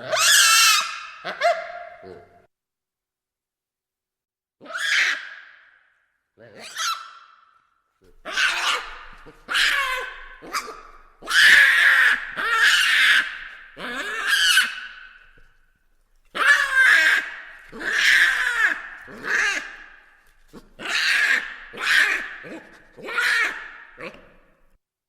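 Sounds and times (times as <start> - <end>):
baboons screaming: 0.0 - 2.2, 4.6 - 5.5, 6.6 - 7.3, 8.2 - 15.3, 16.3 - 24.4.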